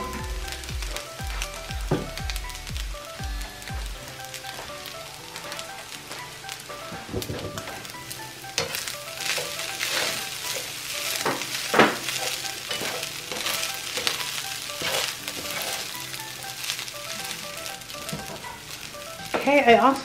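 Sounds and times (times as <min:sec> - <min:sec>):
fried rice sizzling in a skillet: 0:00.0 - 0:20.0.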